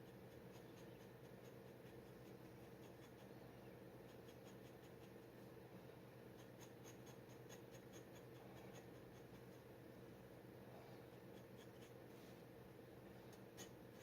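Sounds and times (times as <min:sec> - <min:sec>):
steady low hum: 0:00.0 - 0:14.0
dip pen scratching on paper: 0:06.4 - 0:09.6, 0:13.6 - 0:14.0.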